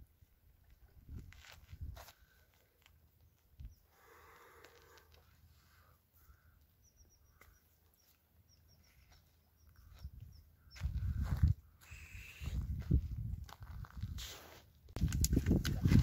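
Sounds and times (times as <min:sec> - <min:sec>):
quiet riverside ambience: 0:00.0 - 0:12.9, 0:13.6 - 0:15.0
small bird chirping: 0:06.2 - 0:11.0.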